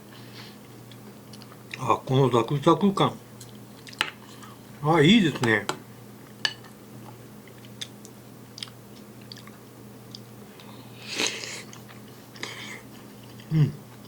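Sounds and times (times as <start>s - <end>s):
faint steady hum: 0.0s - 14.0s
person chewing crunchy food: 0.9s - 1.8s, 3.4s - 4.5s, 7.5s - 14.0s.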